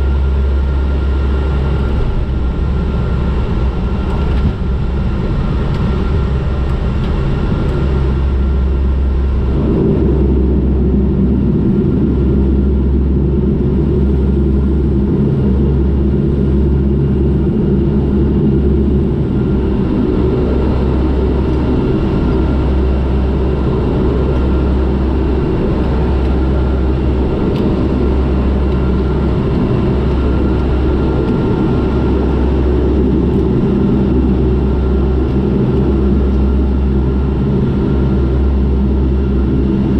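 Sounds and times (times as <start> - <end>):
turboprop engines droning: 0.0 - 39.9.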